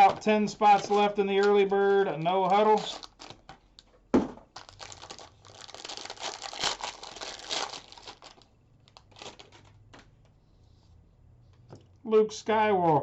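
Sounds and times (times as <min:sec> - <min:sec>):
foil wrapper tearing and crinkling: 0:00.6 - 0:03.5, 0:04.6 - 0:09.7.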